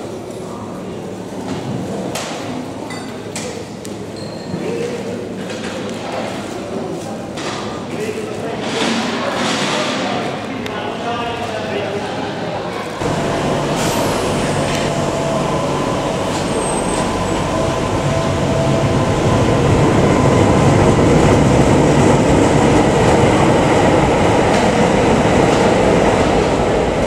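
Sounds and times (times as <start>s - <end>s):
train wheels rumbling on rail: 13.0s - 27.0s.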